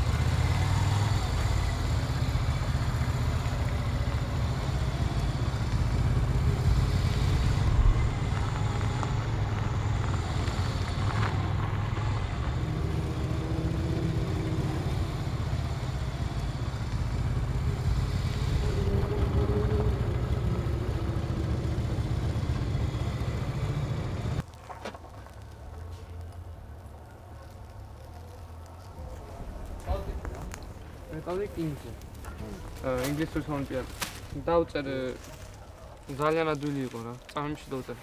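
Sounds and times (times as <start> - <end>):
motorcycle engine rumbling: 0.0 - 38.0.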